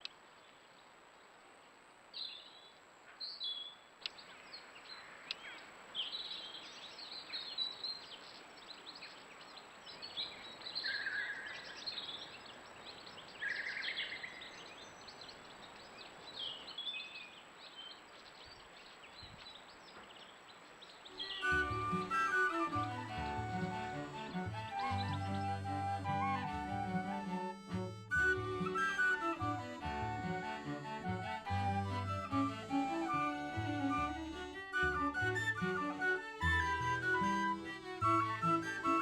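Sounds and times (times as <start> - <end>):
small birds chirping: 2.2 - 26.6
buzzy bird notes: 21.2 - 39.0.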